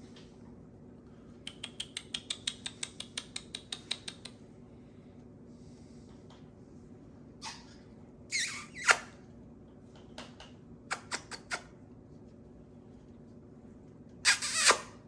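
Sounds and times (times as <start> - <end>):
parrot clicking: 1.4 - 4.4.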